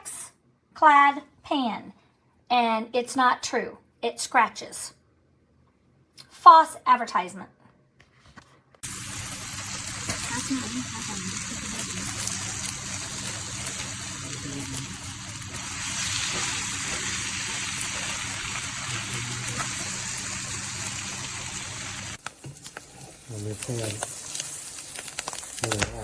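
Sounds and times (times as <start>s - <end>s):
water running from tap: 8.8s - 22.2s.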